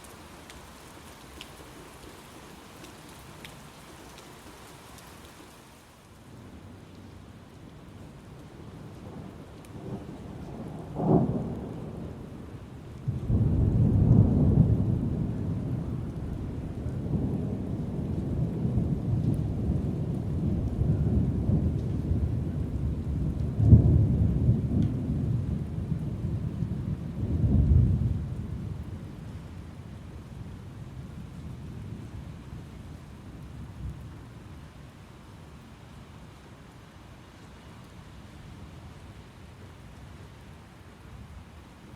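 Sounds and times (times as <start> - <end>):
steady rain: 0.0 - 41.9
thunder rumbling: 13.0 - 29.3.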